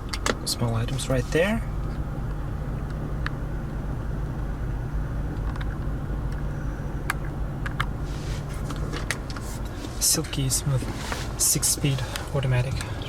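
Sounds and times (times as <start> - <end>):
car engine idling: 0.0 - 13.0
interior trim clicks: 0.0 - 13.0.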